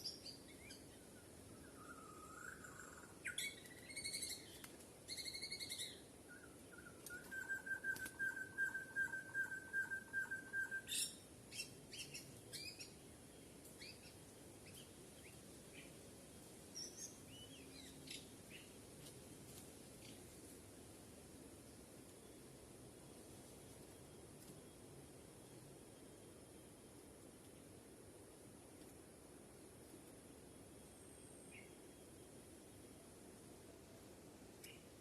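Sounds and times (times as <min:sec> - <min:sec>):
bird chirps and whistles: 0:06.8 - 0:11.1.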